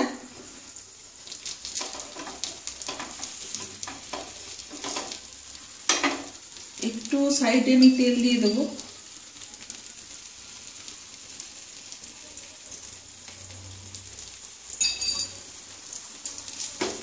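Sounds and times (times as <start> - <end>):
pancake sizzling in oil: 0.0 - 17.0
metal spoon clattering on pan: 1.8 - 5.2, 14.8 - 15.4.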